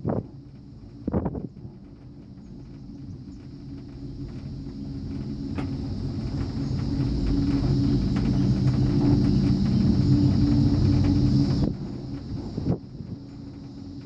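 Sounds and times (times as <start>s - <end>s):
cable car mechanical rumble: 0.0s - 14.0s.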